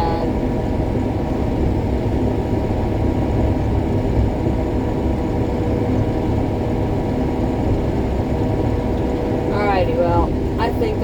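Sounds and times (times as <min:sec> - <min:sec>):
combine harvester droning: 0:00.0 - 0:11.0.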